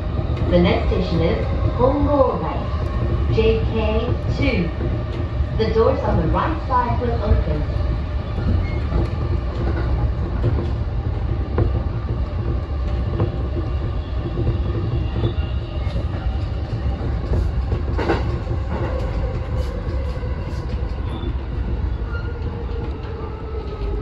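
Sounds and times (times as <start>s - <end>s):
wheels rumbling on rail: 0.0s - 24.0s.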